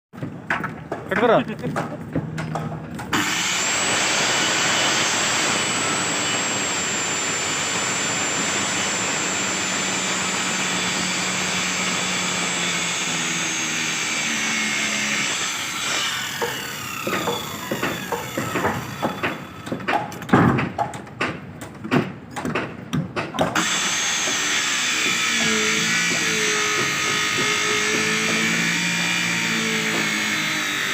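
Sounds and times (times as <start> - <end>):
power saw cutting wood: 3.1 - 20.1, 23.6 - 30.9
short irregular bursts and knocks: 15.4 - 30.3.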